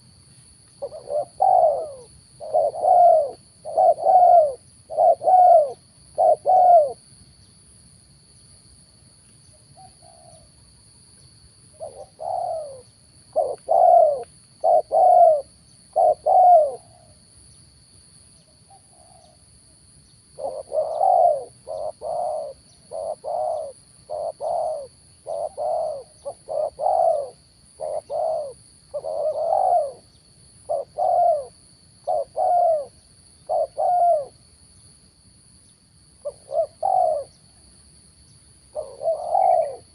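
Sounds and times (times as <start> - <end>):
dove cooing: 0.8 - 7.0, 9.8 - 10.5, 11.8 - 17.2, 18.7 - 19.4, 20.4 - 34.4, 36.2 - 37.5, 38.7 - 39.9.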